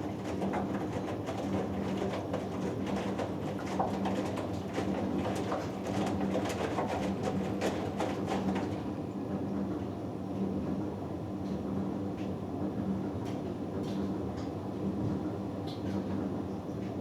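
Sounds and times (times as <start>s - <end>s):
water sloshing in drum: 0.0s - 8.9s.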